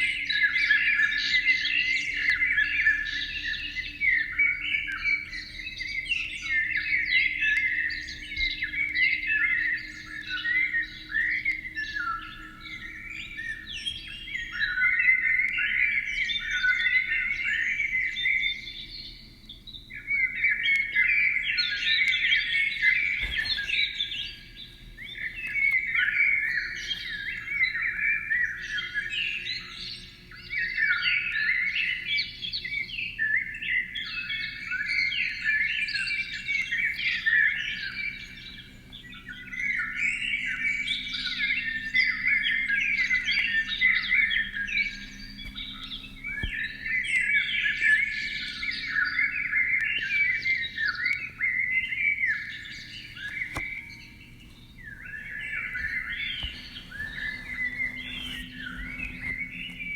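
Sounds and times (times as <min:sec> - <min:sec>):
songbird warbling: 0:04.9 - 0:32.2, 0:33.4 - 0:59.9
faint low hum: 0:34.6 - 0:59.9.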